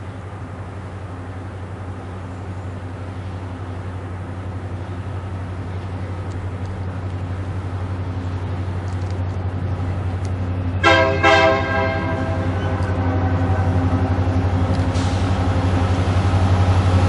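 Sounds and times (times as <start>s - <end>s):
diesel locomotive engine drone: 0.0s - 17.0s
locomotive air horn blasts: 10.8s - 14.2s.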